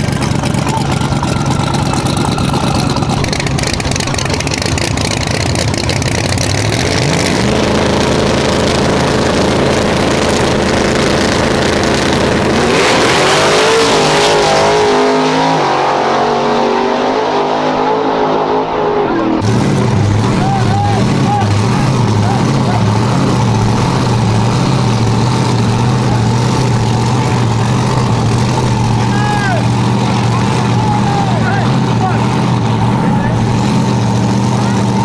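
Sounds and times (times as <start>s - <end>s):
race car engine revving: 0.0s - 35.0s.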